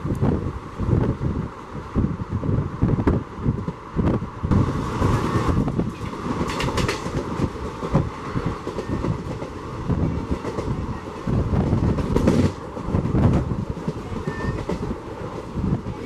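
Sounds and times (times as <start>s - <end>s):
train wheels clattering over track: 4.6s - 16.0s.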